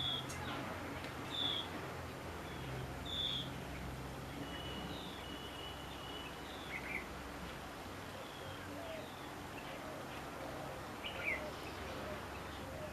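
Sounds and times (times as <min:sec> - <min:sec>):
high bird chirps: 0:00.0 - 0:00.4, 0:01.3 - 0:01.7, 0:02.5 - 0:03.5
background hiss: 0:00.0 - 0:12.9.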